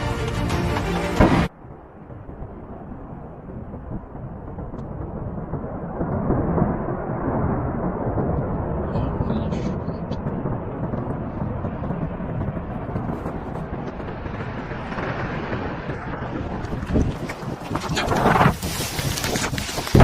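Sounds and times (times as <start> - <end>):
ice and rock crashing down: 16.8 - 20.0.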